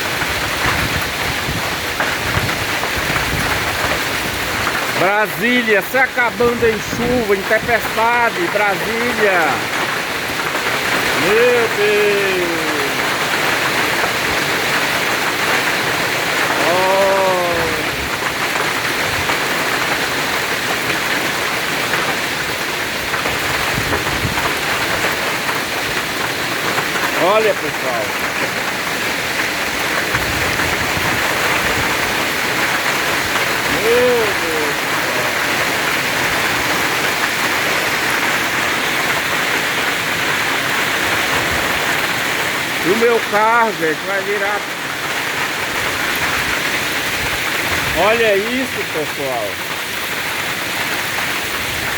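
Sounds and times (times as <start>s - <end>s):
heavy rain and hail: 0.0s - 51.9s
voice-like sound: 11.1s - 13.0s, 16.6s - 18.0s, 33.6s - 35.7s.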